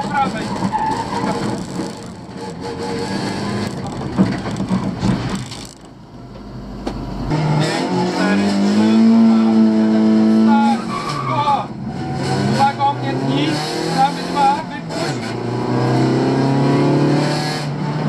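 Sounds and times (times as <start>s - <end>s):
car engine accelerating: 0.0s - 11.0s, 11.7s - 18.0s.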